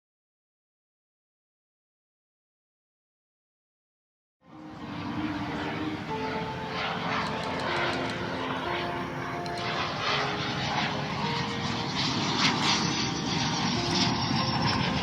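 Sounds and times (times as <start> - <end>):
airplane engine drone: 4.5 - 15.0.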